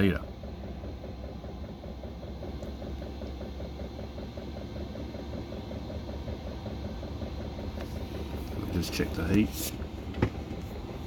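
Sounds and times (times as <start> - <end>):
heater fan and burner hum: 0.0 - 11.0.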